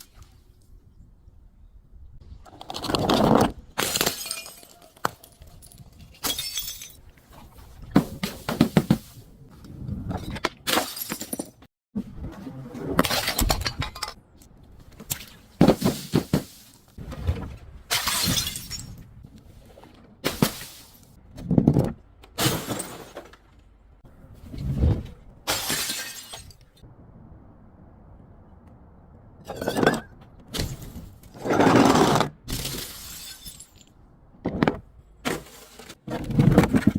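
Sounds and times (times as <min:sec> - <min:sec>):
glass bottles shattering: 0:03.8 - 0:07.0, 0:10.7 - 0:11.6, 0:17.9 - 0:19.0, 0:22.4 - 0:23.2, 0:25.5 - 0:26.6, 0:32.5 - 0:33.9.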